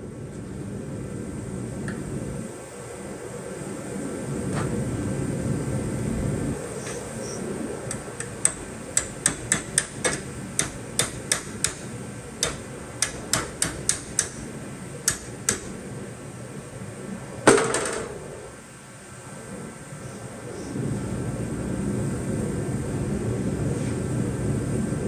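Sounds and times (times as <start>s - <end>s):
hammer tapping metal: 7.9s - 15.9s.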